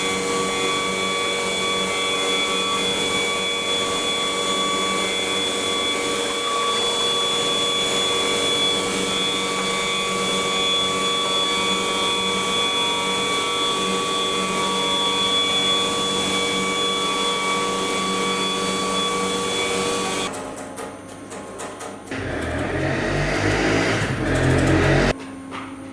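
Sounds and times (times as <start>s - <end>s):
wood cutting noise: 0.0s - 20.3s, 22.1s - 25.2s
router spindle whining: 22.1s - 25.2s.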